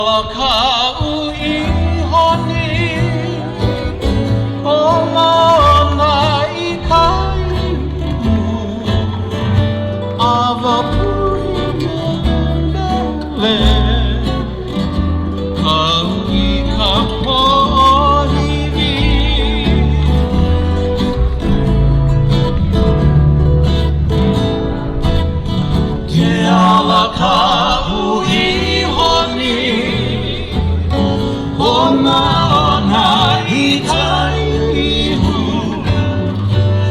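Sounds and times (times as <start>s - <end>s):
person singing with vibrato: 0.0s - 21.9s, 26.0s - 36.9s
plucked strings: 0.0s - 36.9s
stepping bass line: 10.9s - 27.6s.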